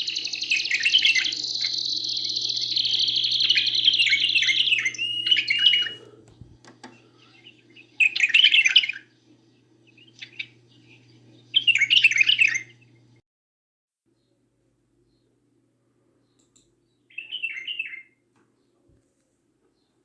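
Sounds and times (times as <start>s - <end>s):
songbird trilling and warbling: 0.0s - 13.1s, 17.1s - 18.1s.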